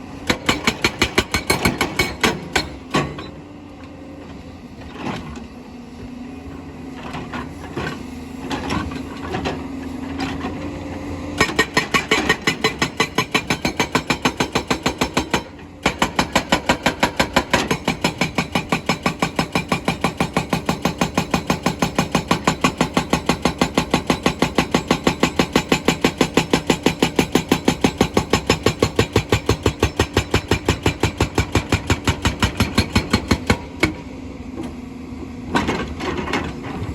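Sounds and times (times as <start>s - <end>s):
hydraulic breaker hammering stone: 0.2s - 3.3s, 11.4s - 34.0s.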